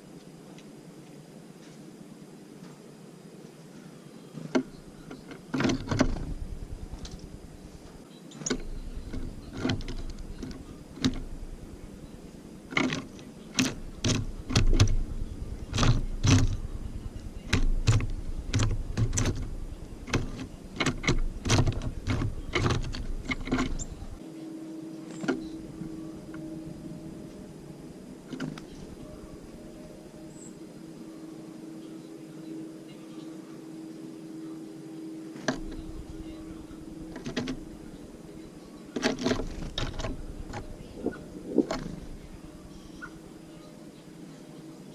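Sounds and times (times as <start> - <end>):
birds pecking at feeder: 4.3 - 24.2, 25.1 - 30.7, 35.4 - 44.5
low rumble: 5.9 - 8.0, 8.6 - 24.2, 35.6 - 38.7.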